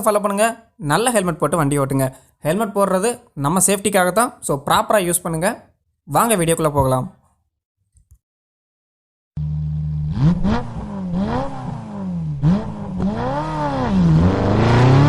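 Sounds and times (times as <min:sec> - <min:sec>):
motorcycle engine revving: 0:09.4 - 0:15.0.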